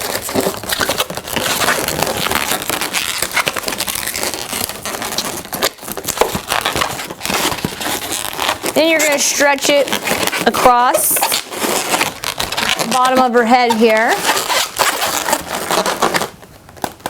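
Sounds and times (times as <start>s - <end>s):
balloons rubbing and squeaking: 0.0s - 17.0s.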